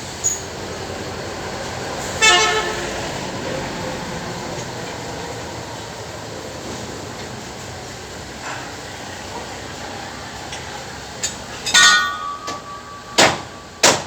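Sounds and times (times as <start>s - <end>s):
vehicle horn toot: 2.2s - 3.1s.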